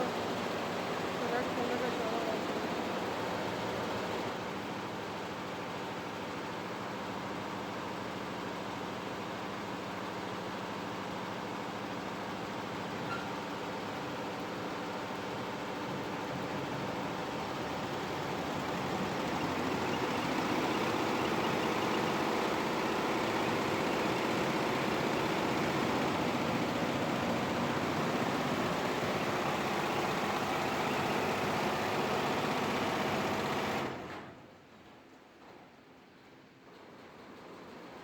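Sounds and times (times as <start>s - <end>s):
embroidery machine stitching: 17.7s - 34.2s.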